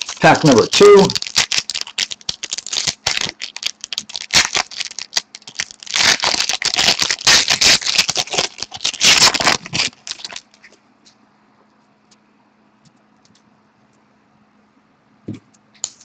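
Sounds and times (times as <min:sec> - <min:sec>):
foil wrapper crinkling: 0:00.0 - 0:10.8.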